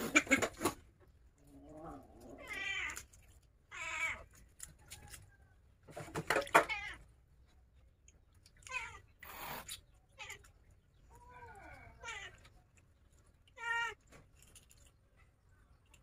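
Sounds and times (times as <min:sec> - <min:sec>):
cat meowing: 0:01.9 - 0:03.1, 0:03.7 - 0:04.3, 0:08.6 - 0:09.1, 0:11.1 - 0:12.5, 0:13.5 - 0:14.0.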